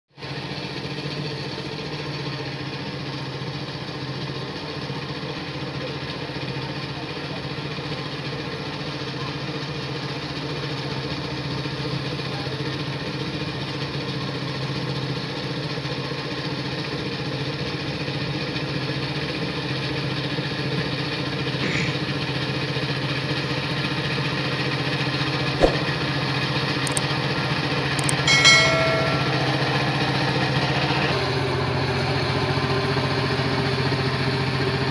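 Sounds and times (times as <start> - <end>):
sharp click: 25.6 - 25.8, 28.0 - 29.4
brief high-pitched tone: 28.0 - 30.1.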